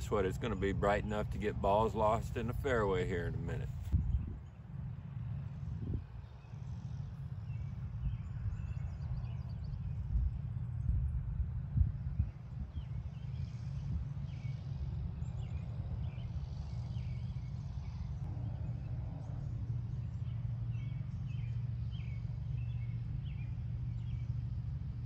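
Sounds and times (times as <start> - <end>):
low background rumble: 0.0 - 25.0
small birds chirping: 12.2 - 25.0.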